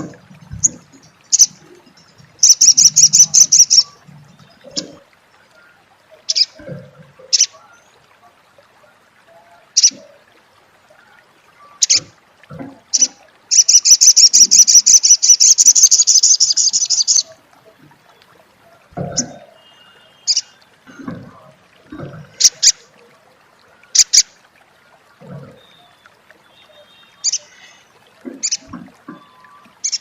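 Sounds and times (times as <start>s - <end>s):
songbird chattering call: 2.4s - 3.9s, 13.0s - 17.3s.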